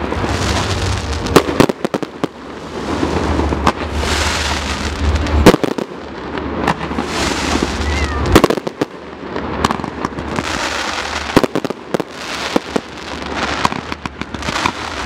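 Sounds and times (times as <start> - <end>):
low rumble: 0.0 - 8.4
fireworks bangs: 0.0 - 15.0
fireworks crackle: 0.0 - 15.0.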